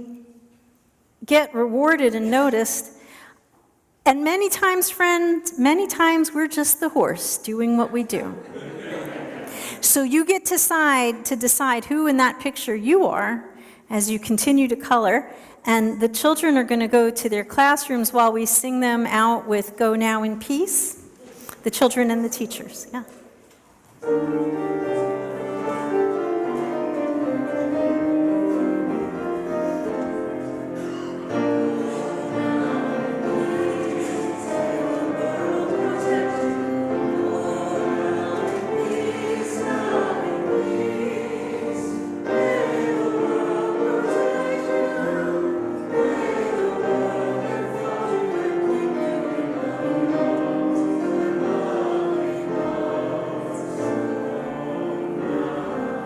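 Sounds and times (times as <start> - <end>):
congregation singing a hymn: 7.8 - 10.0, 24.0 - 56.0.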